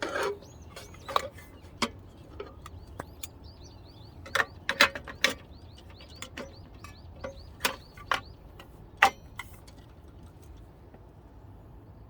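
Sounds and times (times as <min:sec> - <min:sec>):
bird chirping: 0:00.1 - 0:09.4.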